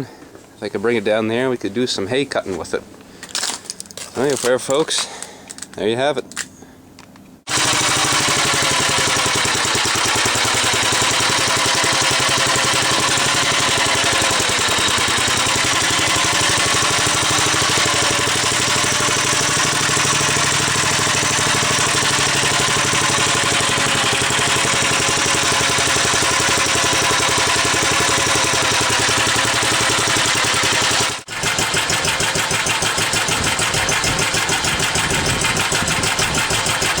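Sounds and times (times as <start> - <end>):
single-cylinder engine idling: 7.4 - 37.0.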